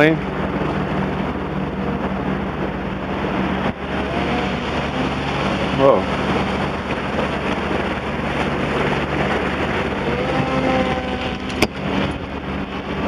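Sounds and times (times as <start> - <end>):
boat motor running: 0.0 - 13.0
wind noise on microphone: 0.0 - 13.0
model plane motor whine: 9.8 - 11.8.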